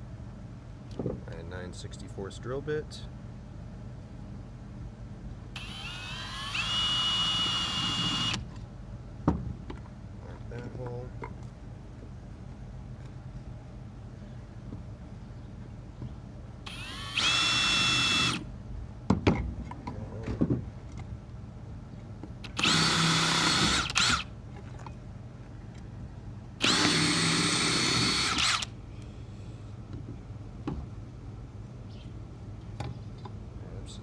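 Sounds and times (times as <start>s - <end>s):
electric drill whining: 5.6s - 8.4s, 16.7s - 18.4s, 22.5s - 24.2s, 26.6s - 28.7s.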